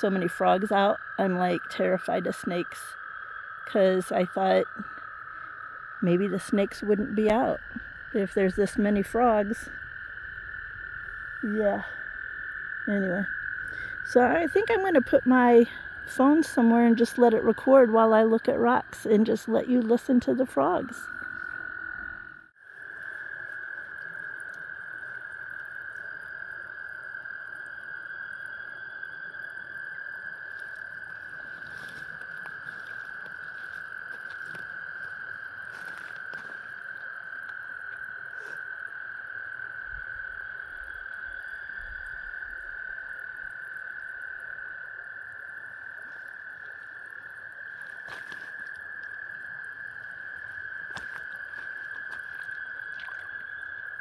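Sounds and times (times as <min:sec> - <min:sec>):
chorus of frogs calling: 0:00.0 - 0:54.0.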